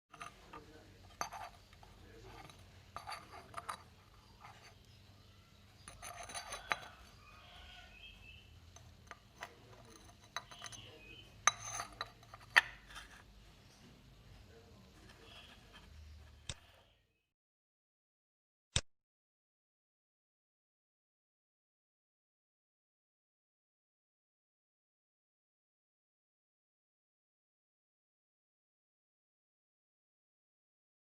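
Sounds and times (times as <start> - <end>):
hard objects clinking and knocking: 0.1 - 13.6.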